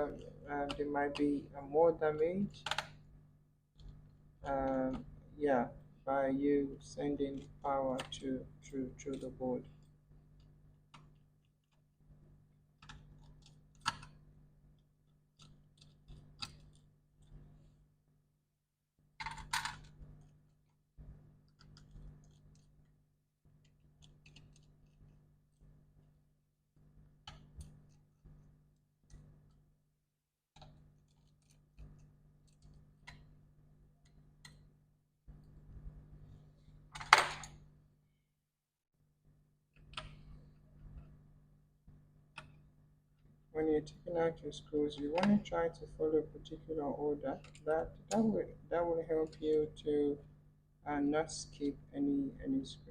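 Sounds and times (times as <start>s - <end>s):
faint steady hum: 0.0s - 18.2s, 39.2s - 52.9s.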